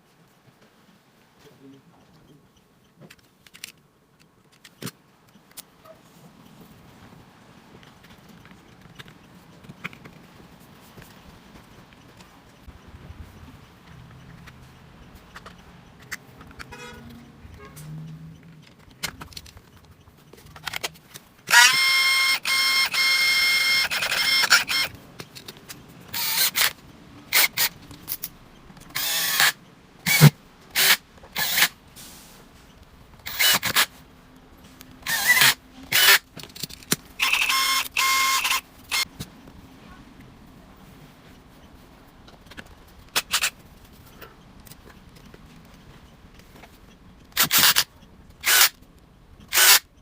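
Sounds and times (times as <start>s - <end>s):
impact wrench motor whine: 21.5s - 24.9s, 26.2s - 26.7s, 29.0s - 29.5s, 30.1s - 31.7s, 33.3s - 33.8s, 35.1s - 36.2s, 37.2s - 39.0s.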